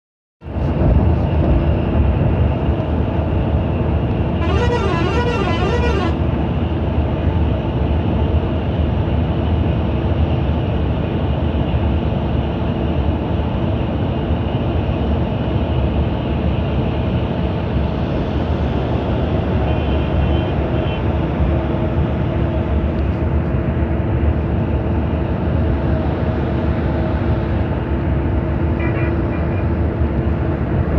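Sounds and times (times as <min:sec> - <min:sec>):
diesel coach engine running: 0:00.4 - 0:30.9
faint short tone: 0:04.4 - 0:06.2
warbling horn: 0:04.4 - 0:06.3.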